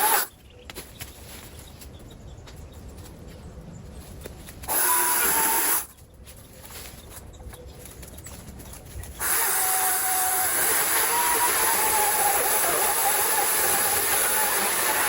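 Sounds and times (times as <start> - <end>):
small gas engine power tool: 0.0 - 0.3, 4.7 - 5.9, 9.2 - 15.0.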